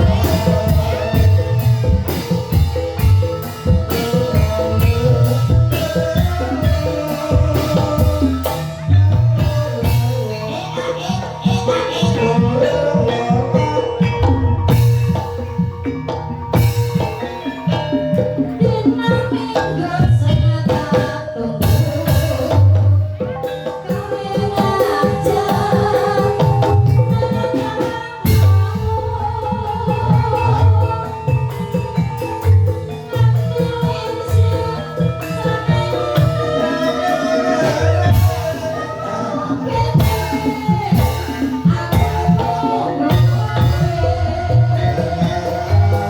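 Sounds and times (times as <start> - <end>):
person singing: 0.0 - 14.4, 33.0 - 46.0
ringing metallophone tones: 0.0 - 46.0
struck percussion: 0.0 - 46.0.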